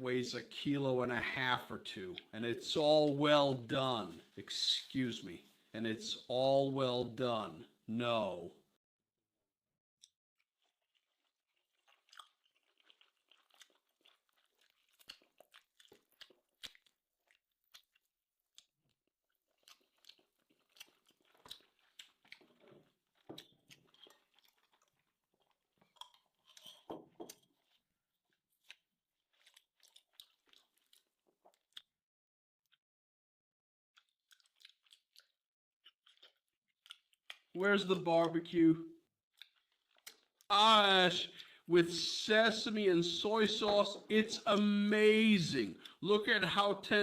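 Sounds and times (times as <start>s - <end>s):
chewing steak: 10.0s - 32.0s, 34.0s - 37.6s, 39.0s - 42.1s.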